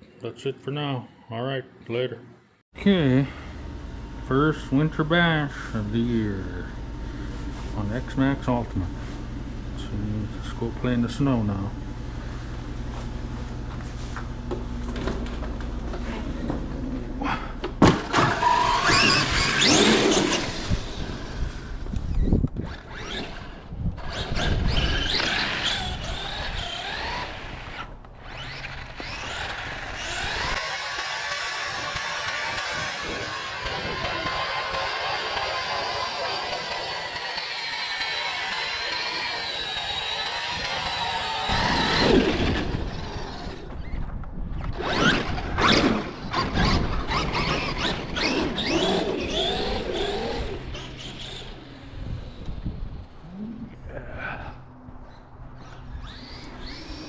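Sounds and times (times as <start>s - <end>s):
electric motor whining: 3.5s - 57.0s
truck rumbling through snow: 22.7s - 44.0s, 44.7s - 52.4s.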